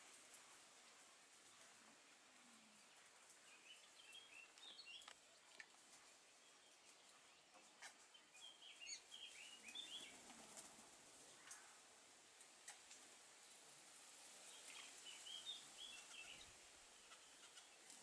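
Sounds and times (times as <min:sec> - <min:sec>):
faint bird chirps: 0:14.5 - 0:17.9.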